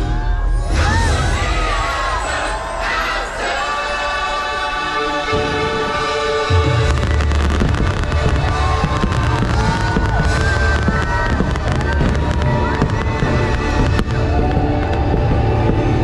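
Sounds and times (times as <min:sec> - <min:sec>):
loud show music: 0:00.0 - 0:16.0
fireworks booming and crackling: 0:05.2 - 0:16.0.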